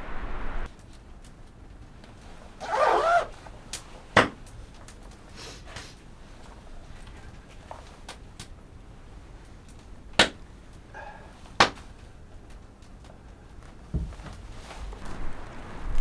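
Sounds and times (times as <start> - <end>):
low rumble: 0.0 - 0.7, 15.0 - 16.0.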